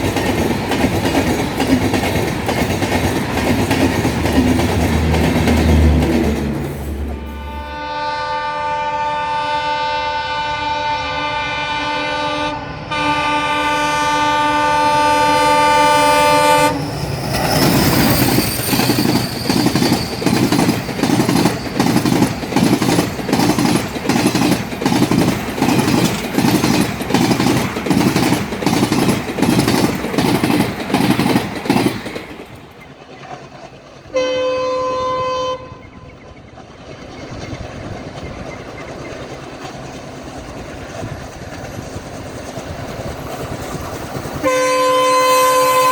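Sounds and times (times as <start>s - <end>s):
train wheels clickety-clack: 0.0s - 7.8s, 14.6s - 45.9s
locomotive horn blast: 5.8s - 16.9s, 34.1s - 36.0s, 44.4s - 45.9s.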